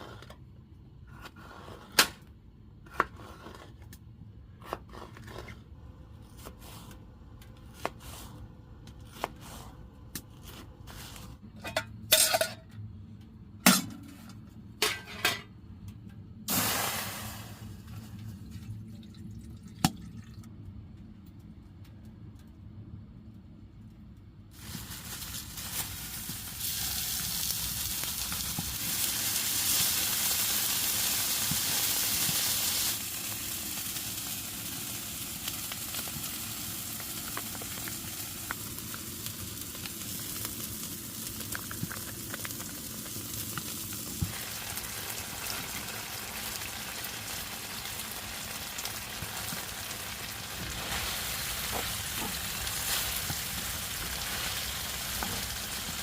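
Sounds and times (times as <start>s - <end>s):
food sizzling in a pan: 24.6s - 56.0s
small crackles and clicks: 35.1s - 44.4s.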